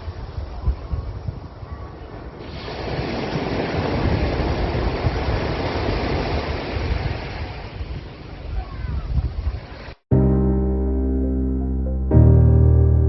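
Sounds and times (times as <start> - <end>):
wind rumbling on microphone: 0.0 - 10.0
surf washing against rocks: 2.0 - 8.5.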